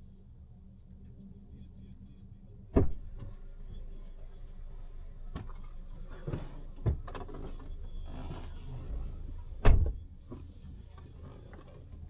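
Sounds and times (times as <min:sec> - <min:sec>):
low steady hum: 0:00.0 - 0:12.0
clicks and knocks around car: 0:05.3 - 0:08.4
car door shutting: 0:09.6 - 0:10.0.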